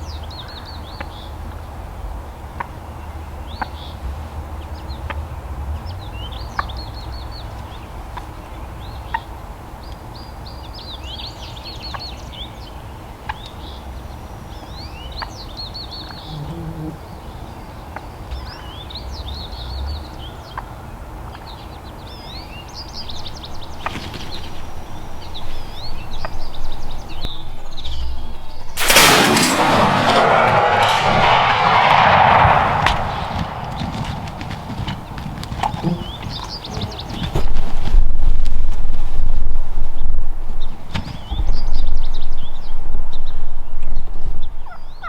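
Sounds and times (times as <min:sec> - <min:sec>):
steady low rumble: 0:23.0 - 0:36.2.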